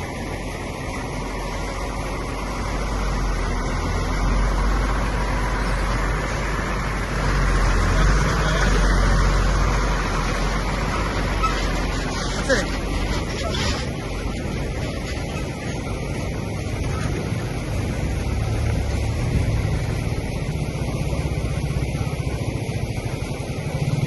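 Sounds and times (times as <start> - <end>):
motor vehicle running: 0.0 - 24.0
road noise: 0.0 - 24.0.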